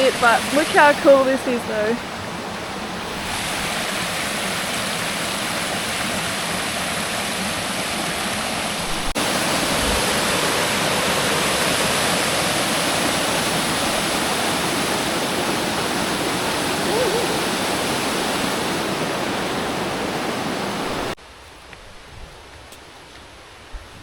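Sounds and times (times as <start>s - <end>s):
waterfall hiss: 0.0s - 21.6s.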